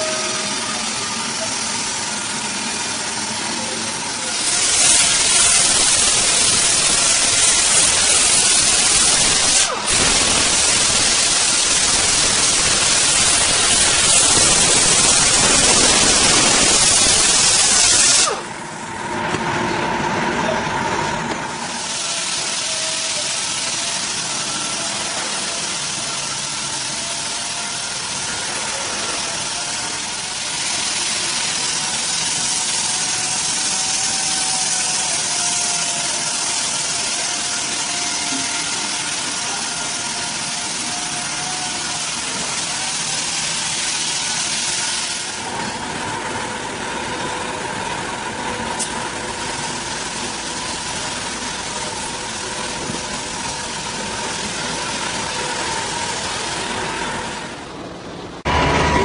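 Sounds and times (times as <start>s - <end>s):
chainsaw engine running: 0.8s - 18.5s.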